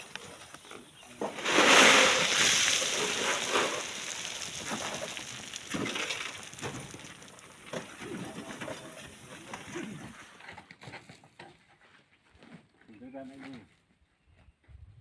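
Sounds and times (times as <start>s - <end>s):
falling stones knocking: 0.0s - 9.8s
sand and rock sliding: 0.0s - 10.3s.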